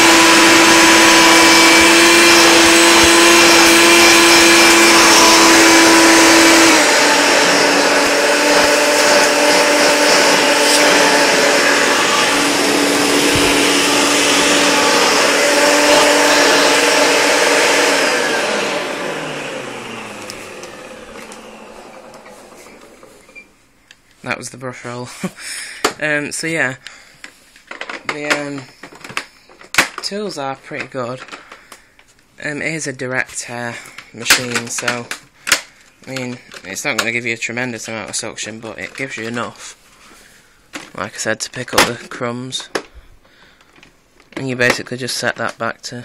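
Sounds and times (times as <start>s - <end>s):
vacuum motor spinning down: 0.0s - 23.4s
vacuum cleaner running: 0.0s - 23.5s.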